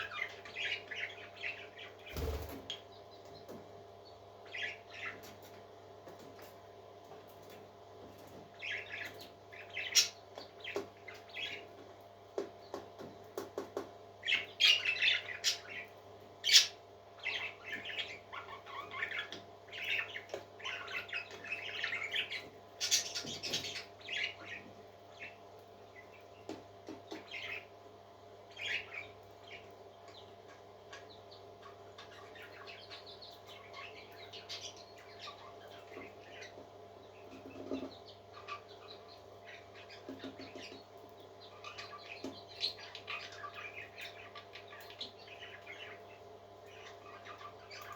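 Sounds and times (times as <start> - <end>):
parrots squawking and chirping: 16.4 - 24.6, 46.7 - 47.9.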